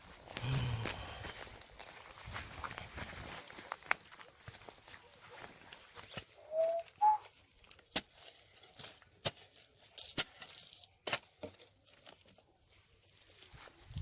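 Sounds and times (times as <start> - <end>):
faint steady high tone: 4.3 - 7.8
short pitched calls: 6.1 - 7.4.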